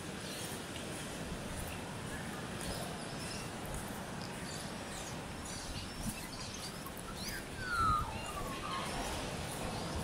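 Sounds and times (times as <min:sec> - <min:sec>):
outdoor background noise: 0:00.0 - 0:10.0
birds chirping: 0:01.5 - 0:10.0
downward-slurred whistled bird calls: 0:05.0 - 0:09.1.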